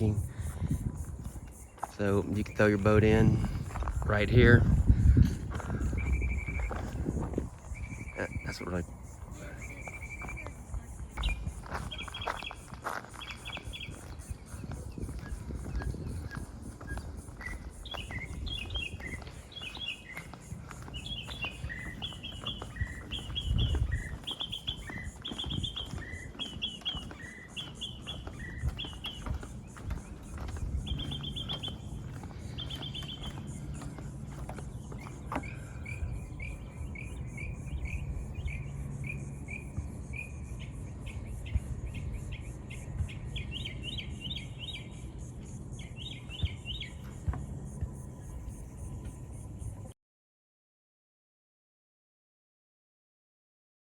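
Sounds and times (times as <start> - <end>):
songbirds singing: 0.0 - 49.9.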